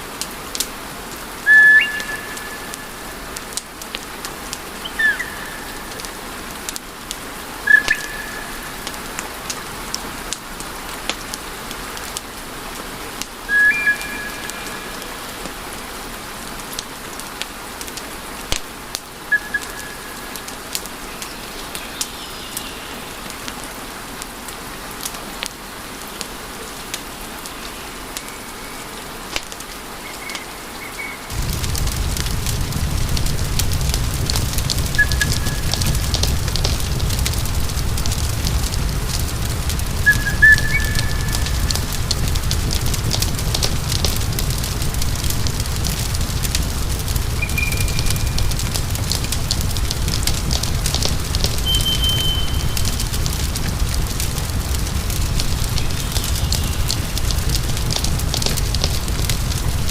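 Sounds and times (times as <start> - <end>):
wood fire crackling: 0.0 - 59.9
short high whistles: 51.6 - 52.8.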